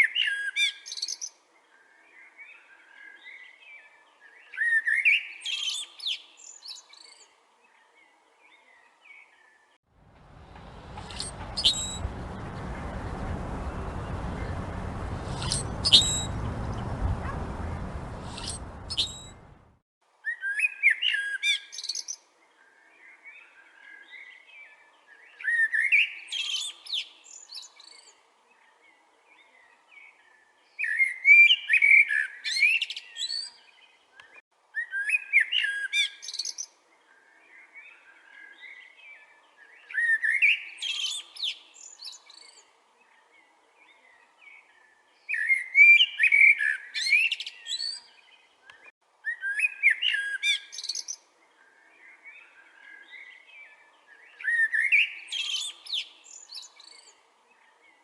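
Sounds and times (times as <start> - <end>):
blackbird whistled warbling song: 0.0 - 1.3, 1.9 - 7.2, 10.3 - 19.5, 20.2 - 22.2, 30.8 - 36.7, 37.5 - 42.6, 43.8 - 57.7
soft bird chattering: 10.5 - 13.0, 15.3 - 19.5.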